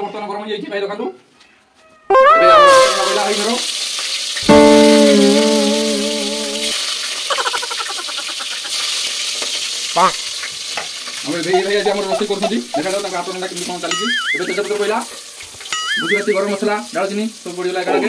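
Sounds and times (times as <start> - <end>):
food sizzling in hot oil: 2.8 - 18.0
background music with wavering notes: 4.4 - 6.8.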